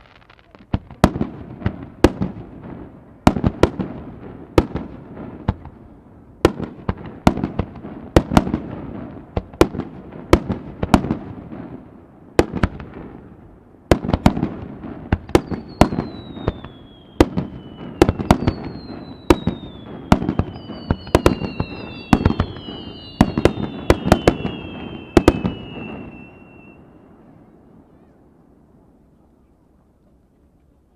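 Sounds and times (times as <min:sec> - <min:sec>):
fireworks whistles: 0:00.0 - 0:00.7, 0:15.2 - 0:28.0
fireworks bangs: 0:00.0 - 0:28.4.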